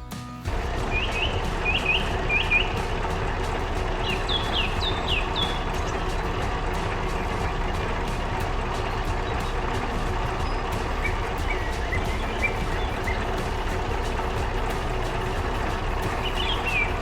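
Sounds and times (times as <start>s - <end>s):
bird chirps: 0.5s - 17.0s
heavy machine engine running: 0.5s - 17.0s.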